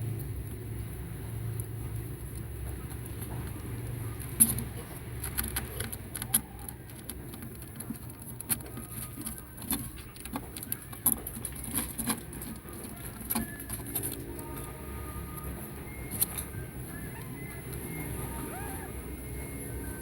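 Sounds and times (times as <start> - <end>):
kitten claws scratching hard surface: 4.1 - 14.8.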